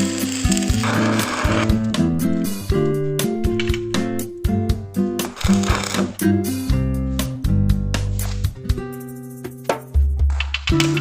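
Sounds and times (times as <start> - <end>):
guitar chords: 0.1 - 5.2
percussion: 8.0 - 11.0.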